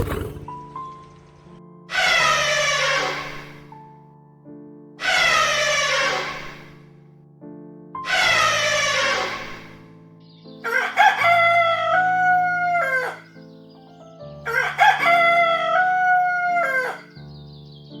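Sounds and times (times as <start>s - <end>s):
soft background music: 0.1s - 18.0s
rooster crowing: 8.1s - 9.4s, 10.6s - 13.3s, 14.5s - 17.2s.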